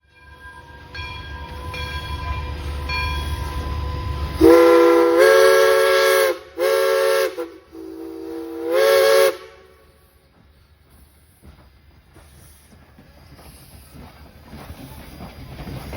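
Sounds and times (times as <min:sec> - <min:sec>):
train low rumble: 0:00.0 - 0:15.9
locomotive chime whistle blasts: 0:00.1 - 0:10.0
steam hissing: 0:01.6 - 0:15.9.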